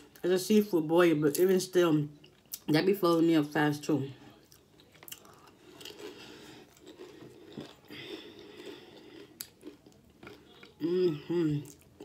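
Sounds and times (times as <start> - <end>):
wet chewing mouth sounds: 4.4 - 12.0.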